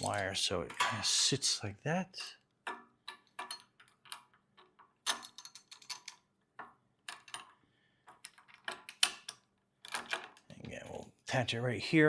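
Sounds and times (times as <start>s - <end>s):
small metal parts clinking: 0.0s - 0.9s, 2.2s - 10.5s.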